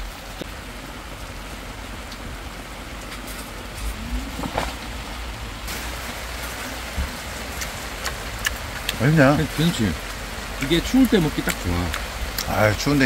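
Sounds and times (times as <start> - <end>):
low rumble: 0.0 - 10.6
rain falling on a tarp: 0.0 - 13.0.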